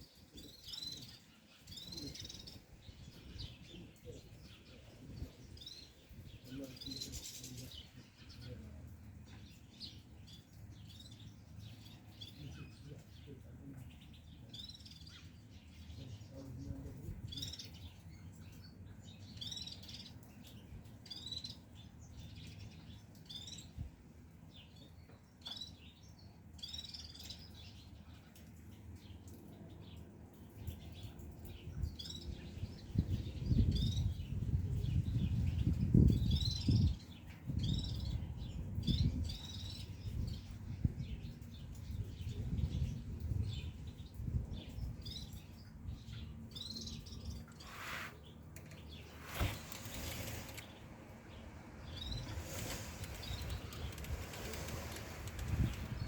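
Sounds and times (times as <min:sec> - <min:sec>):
goldfinches chirping: 0:49.8 - 0:56.0.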